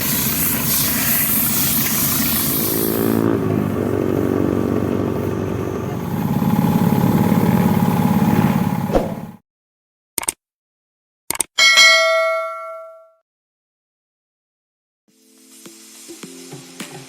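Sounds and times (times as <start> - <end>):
motorcycle engine running: 2.0 - 9.4.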